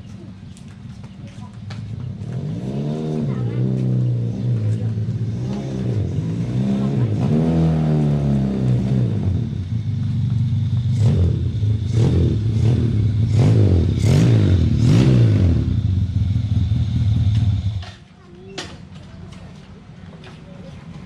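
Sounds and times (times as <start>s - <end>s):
motorcycle engine revving: 1.8s - 18.0s.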